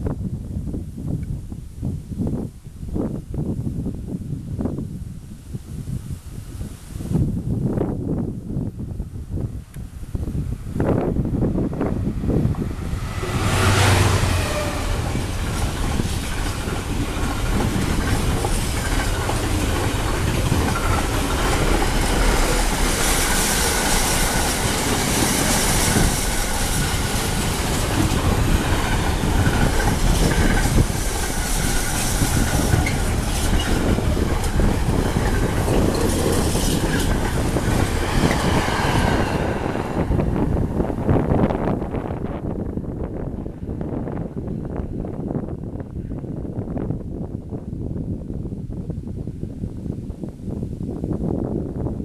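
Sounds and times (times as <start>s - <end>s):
train wheels clattering over rails: 12.4s - 41.4s.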